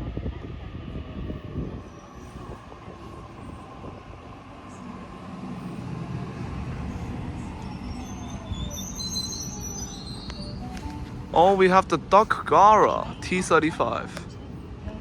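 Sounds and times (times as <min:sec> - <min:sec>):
train wheels rumbling on rail: 0:00.0 - 0:15.0
high-pitched squeal: 0:01.8 - 0:10.9.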